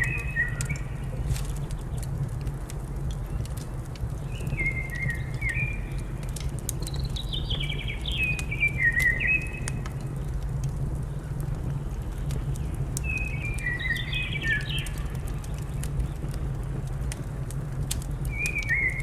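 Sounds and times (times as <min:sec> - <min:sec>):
songbird whistling: 0:00.0 - 0:01.0, 0:04.3 - 0:06.0, 0:06.9 - 0:09.8, 0:13.0 - 0:15.1, 0:18.3 - 0:19.0
steady low rumble: 0:00.0 - 0:19.0
wood fire crackling: 0:00.0 - 0:19.0.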